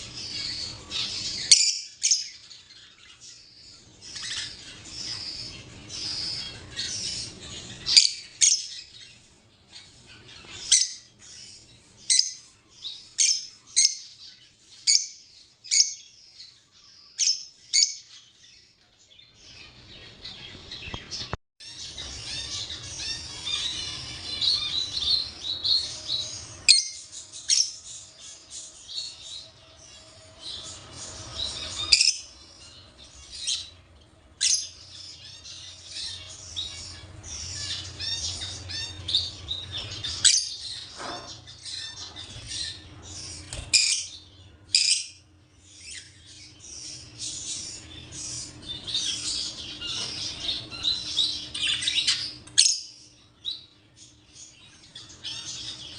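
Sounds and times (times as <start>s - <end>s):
parrots chattering and chirping: 0.0s - 18.3s, 19.4s - 55.9s.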